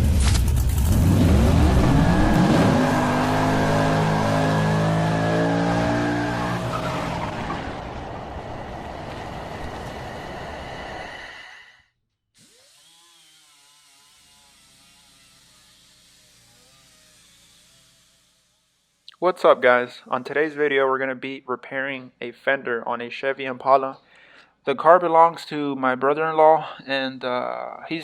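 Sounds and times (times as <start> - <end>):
car engine revving hard: 0.5 - 9.0
tire squeal: 0.9 - 11.3.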